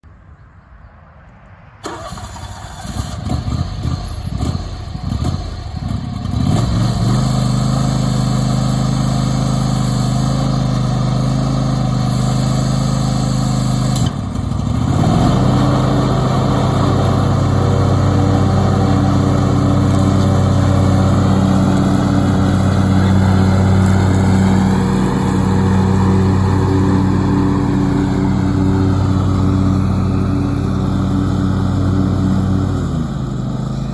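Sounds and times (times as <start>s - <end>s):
engine starter cranking: 1.8s - 4.5s
lawn tractor engine running: 1.8s - 33.9s.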